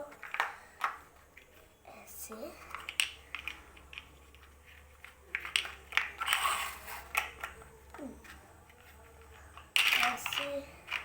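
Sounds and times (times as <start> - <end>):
plastic bricks clicking: 0.0 - 1.2, 2.7 - 11.0.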